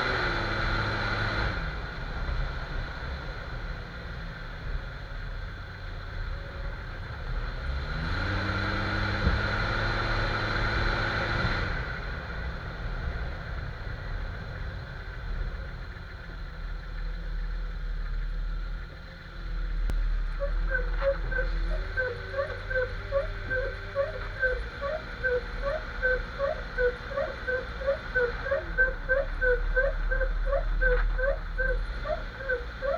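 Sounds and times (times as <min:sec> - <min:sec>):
road and drivetrain rumble: 0:00.0 - 0:32.9
engine revving: 0:07.3 - 0:12.4, 0:19.8 - 0:32.9
rhythmic squeak: 0:20.2 - 0:32.9.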